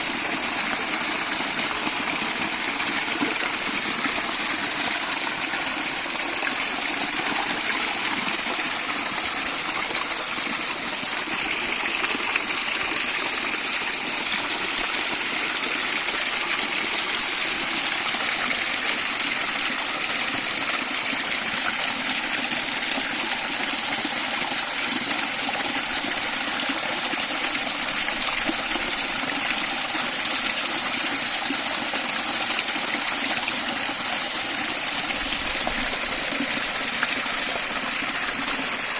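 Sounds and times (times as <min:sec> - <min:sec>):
stream babbling over rocks: 0:00.0 - 0:38.9.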